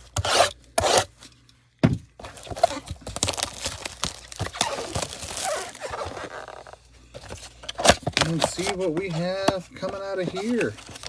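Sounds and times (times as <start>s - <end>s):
cardboard box tearing: 2.2s - 11.0s.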